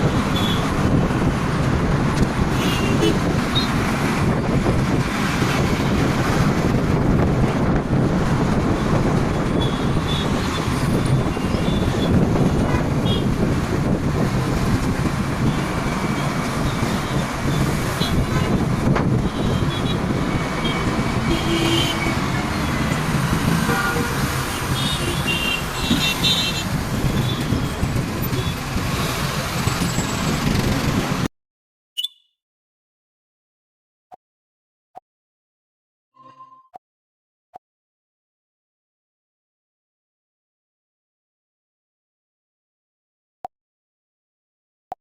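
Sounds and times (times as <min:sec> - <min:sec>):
wind and road rumble: 0:00.0 - 0:31.3.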